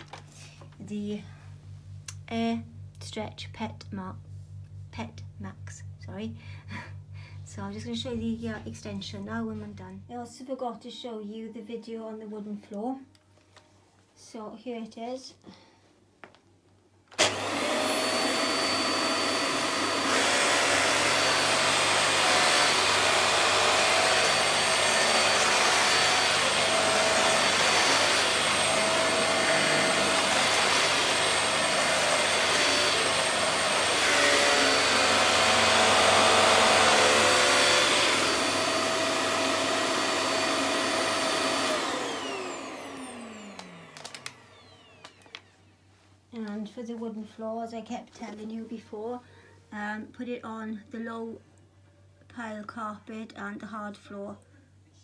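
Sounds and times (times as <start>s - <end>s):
vacuum cleaner running: 17.1s - 45.7s.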